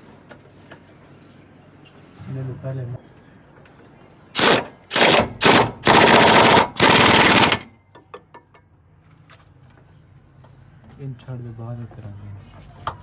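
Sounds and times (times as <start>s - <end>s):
pneumatic impact wrench rattling: 4.4s - 7.7s.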